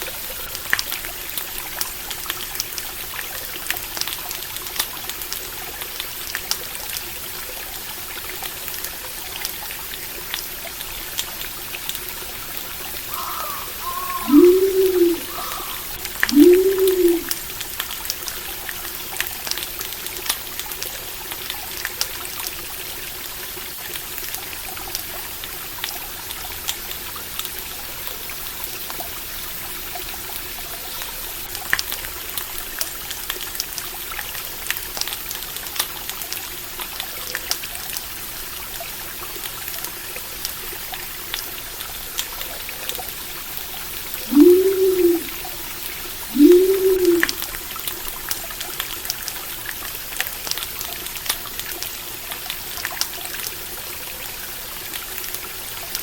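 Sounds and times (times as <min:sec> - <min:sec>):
water trickling in a stream: 0:00.0 - 0:56.0
short low rising and falling call: 0:13.8 - 0:17.3, 0:44.3 - 0:45.5, 0:46.3 - 0:47.4.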